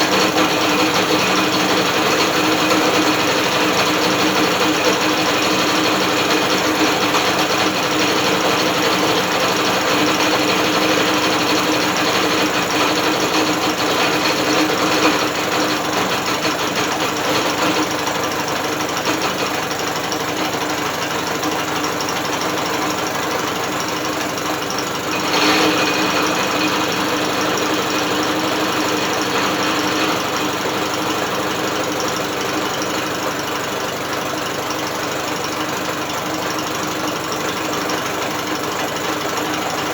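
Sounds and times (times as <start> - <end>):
drill turning motor whir and rattle: 24.8 - 32.8.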